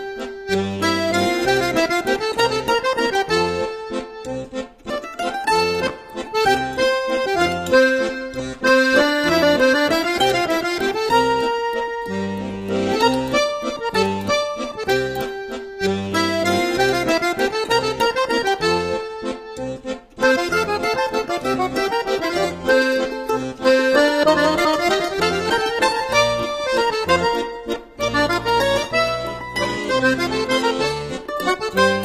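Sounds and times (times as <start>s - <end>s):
accordion music: 0.0s - 32.0s.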